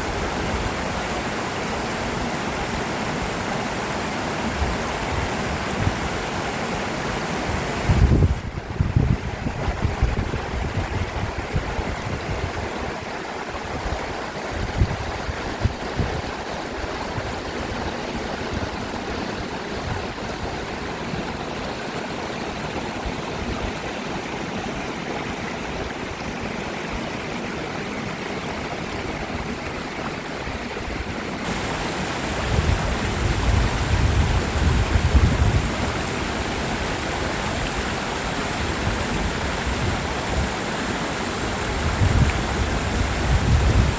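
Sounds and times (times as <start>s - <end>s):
stream rushing over rocks: 0.0s - 43.9s
wind rumble on microphone: 4.5s - 6.4s, 7.4s - 21.2s, 28.9s - 43.9s.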